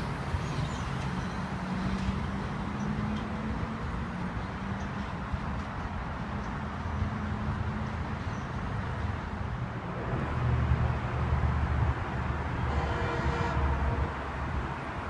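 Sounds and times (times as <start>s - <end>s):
distant train rumble: 9.8s - 15.0s.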